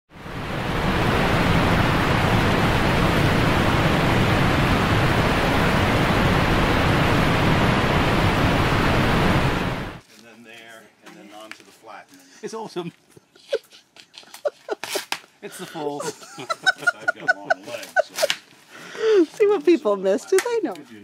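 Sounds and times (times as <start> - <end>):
loud rushing noise: 0.1 - 10.0.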